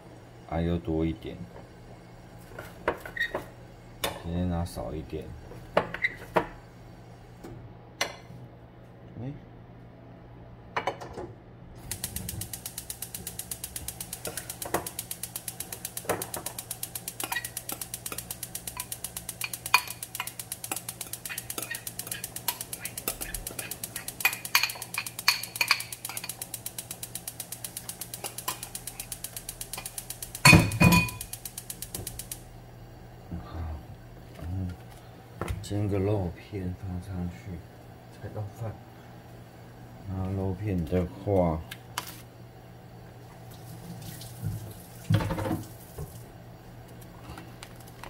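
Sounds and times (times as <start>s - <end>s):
low steady hum: 0.0s - 48.0s
mechanism clicking rapidly: 11.8s - 30.5s, 31.1s - 32.4s.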